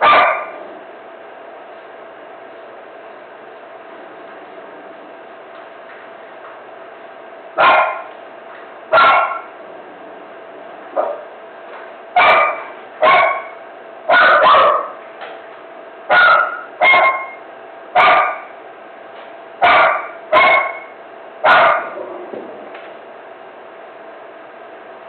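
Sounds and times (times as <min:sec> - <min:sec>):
dog barking: 0:00.0 - 0:00.6, 0:07.6 - 0:08.1, 0:08.9 - 0:09.6, 0:11.0 - 0:11.3, 0:12.2 - 0:15.0, 0:16.1 - 0:17.4, 0:18.0 - 0:18.6, 0:19.6 - 0:22.0.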